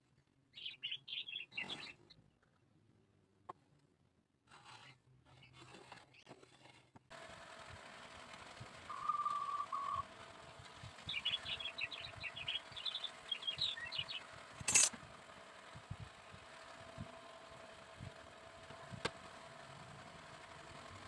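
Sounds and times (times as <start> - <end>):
bird chirping: 0.5 - 2.2, 8.9 - 10.0, 11.0 - 14.3
steady whistle: 8.9 - 10.0
sharp click: 14.6 - 15.0.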